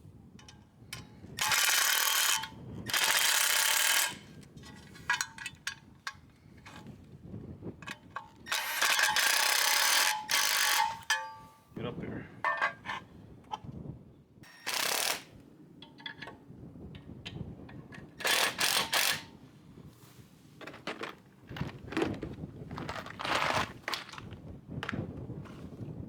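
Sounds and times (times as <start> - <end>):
rustling or scraping: 19.9 - 25.9
hardware knocks and clicks: 20.6 - 24.2.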